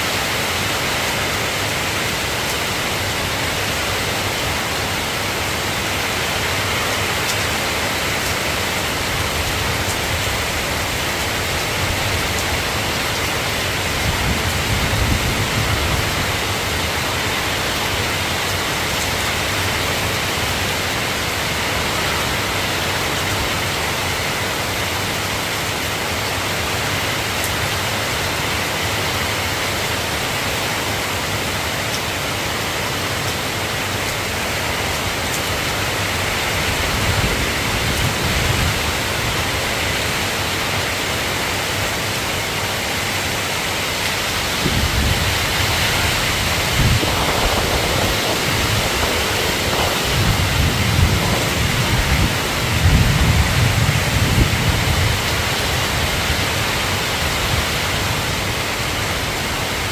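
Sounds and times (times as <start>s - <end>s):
steady rain hissing: 0.0s - 59.9s
low rumbles: 44.6s - 55.8s.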